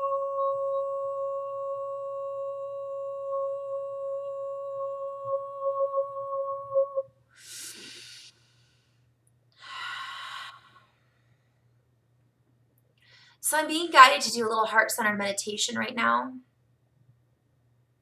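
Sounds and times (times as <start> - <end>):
woman's sustained vocal tone: 0.0 - 8.3
long breathy exhale: 7.4 - 9.0
quick breath in: 7.4 - 9.0.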